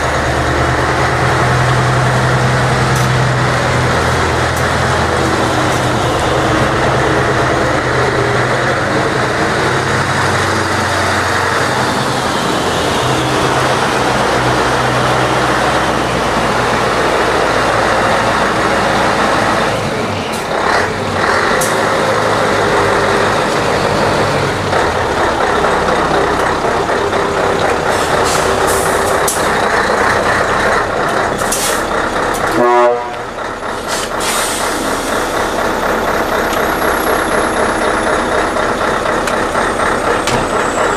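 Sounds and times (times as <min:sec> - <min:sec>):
diesel truck engine running: 0:00.0 - 0:40.9
air brake hisses: 0:33.8 - 0:35.4.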